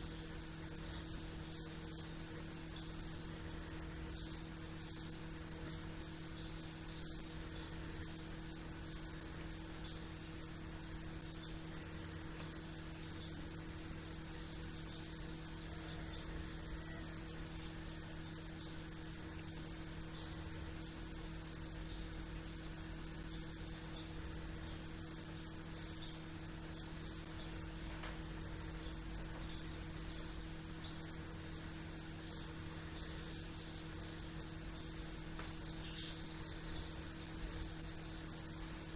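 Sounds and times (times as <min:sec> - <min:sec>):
distant small birds chirping: 0:00.0 - 0:38.9
steady hum and hiss: 0:00.0 - 0:38.9.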